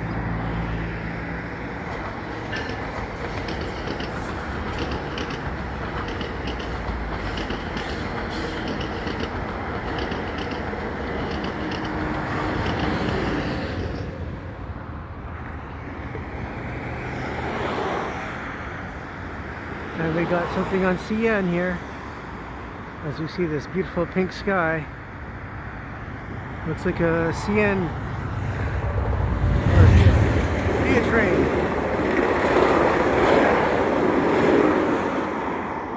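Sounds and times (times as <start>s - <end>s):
train rumbling past: 0.0s - 35.9s
wheels clicking over rail joints: 1.0s - 14.2s, 29.9s - 35.5s.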